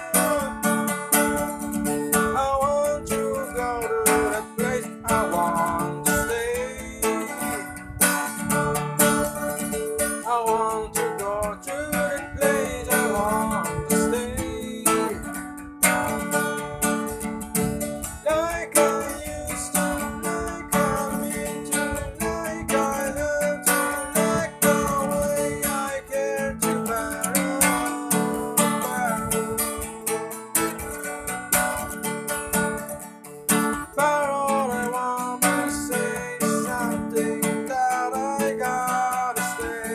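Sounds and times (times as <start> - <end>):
lead guitar melody: 0.0 - 39.9
strummed guitars: 0.0 - 39.9.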